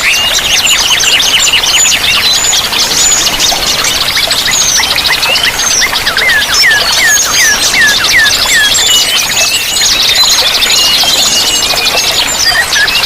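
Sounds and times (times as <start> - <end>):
running water rushing: 0.0 - 13.0
songbirds singing: 0.0 - 13.0.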